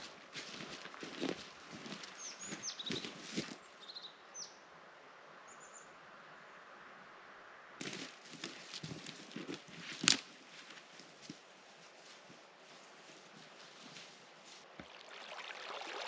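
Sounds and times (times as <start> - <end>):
footsteps crunching in snow: 0.0 - 3.6, 7.8 - 14.7
small bird chirping: 2.0 - 4.5.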